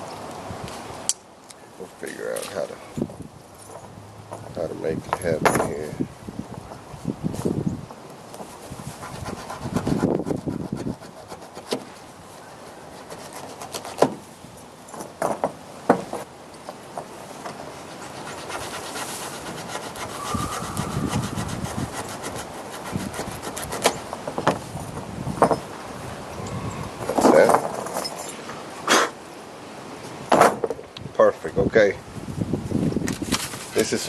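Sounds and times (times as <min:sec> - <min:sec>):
knife rubbing and scraping: 0:17.5 - 0:24.2.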